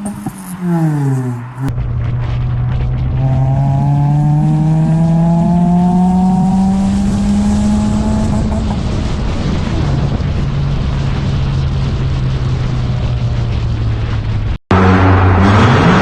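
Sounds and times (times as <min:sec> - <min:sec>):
engine falling in pitch: 0:00.0 - 0:10.8
car engine revving up: 0:00.0 - 0:11.6, 0:14.7 - 0:16.0.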